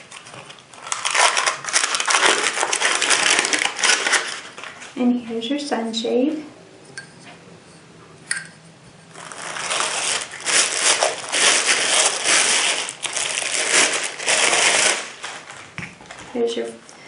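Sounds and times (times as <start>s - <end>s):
plastic packaging crinkling: 0.0s - 5.0s, 9.1s - 16.2s.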